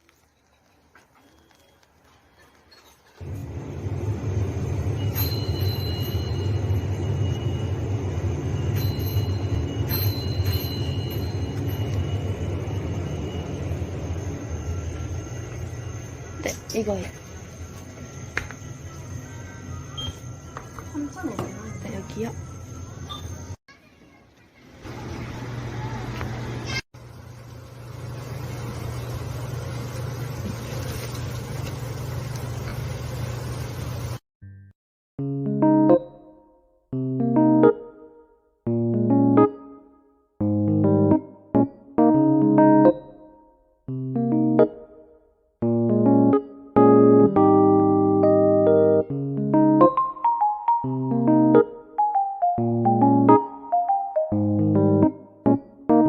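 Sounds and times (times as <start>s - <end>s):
faint high whines: 3.3s - 23.6s.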